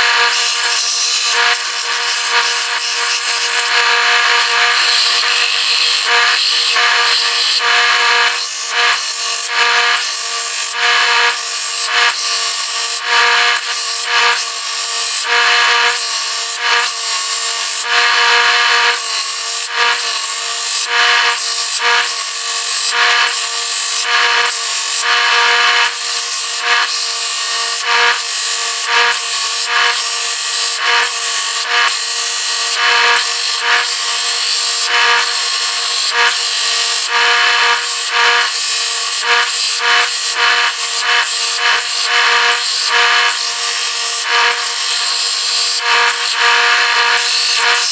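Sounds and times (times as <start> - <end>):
electric power tool working wood: 0.0 - 47.9.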